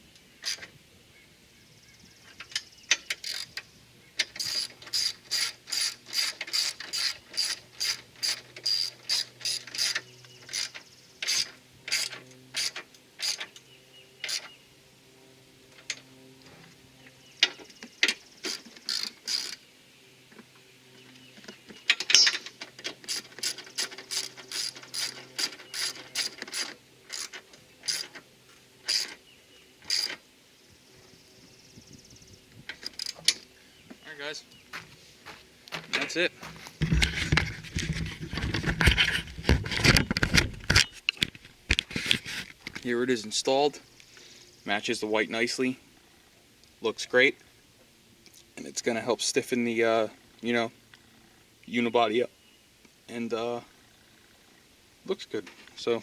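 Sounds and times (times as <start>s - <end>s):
ratchet wrench clicking: 3.2s - 3.5s, 4.4s - 13.5s, 18.4s - 19.6s, 23.0s - 28.2s, 28.8s - 29.2s, 29.8s - 30.2s.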